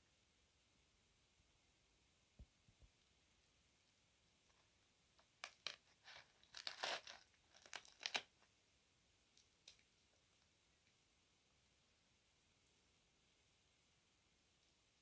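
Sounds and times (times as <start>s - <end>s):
crackling rustling handling noises: 5.4s - 8.5s.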